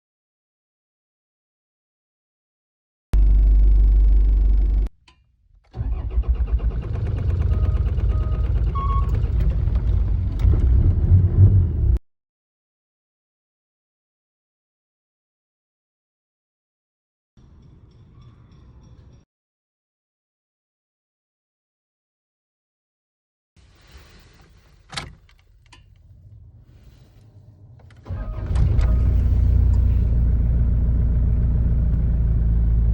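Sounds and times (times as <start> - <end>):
diesel engine starting and running: 3.2 - 4.9, 5.6 - 12.0, 25.7 - 32.9.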